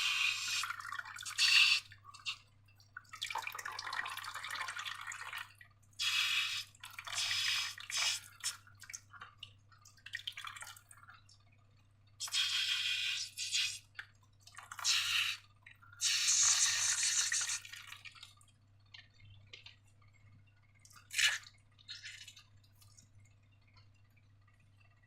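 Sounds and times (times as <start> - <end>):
slime squishing and dripping: 20.8 - 24.0.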